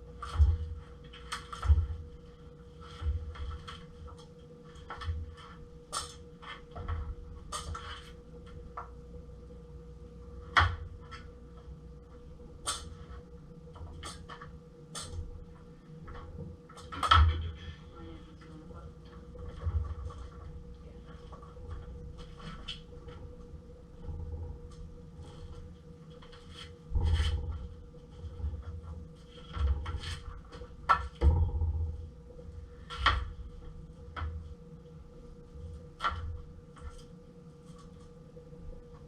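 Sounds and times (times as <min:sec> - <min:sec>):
faint hum: 0:00.0 - 0:39.0.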